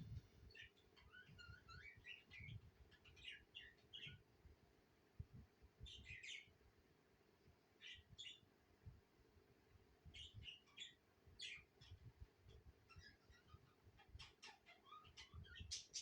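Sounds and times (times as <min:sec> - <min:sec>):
budgerigars chirping and warbling: 0:00.5 - 0:04.2, 0:10.2 - 0:16.0.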